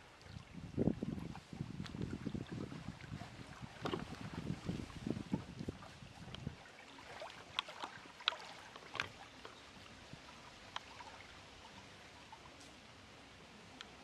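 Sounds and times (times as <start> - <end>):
water lapping at shore: 0.0 - 14.0
small sharp splashes: 3.3 - 11.5.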